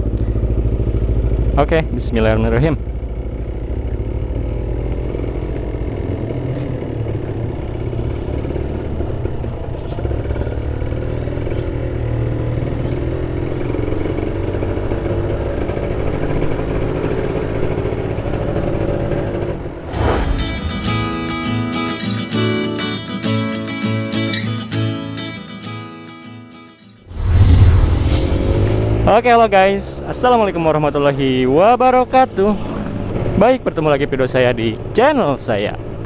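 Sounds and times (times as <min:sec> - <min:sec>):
motorcycle engine running: 0:00.0 - 0:22.4, 0:27.1 - 0:30.5
strummed acoustic guitar music: 0:19.9 - 0:27.1.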